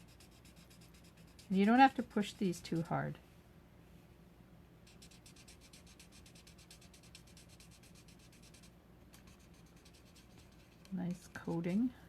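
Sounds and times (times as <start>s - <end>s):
marker scribbling on card: 0.0s - 2.9s, 4.9s - 10.9s.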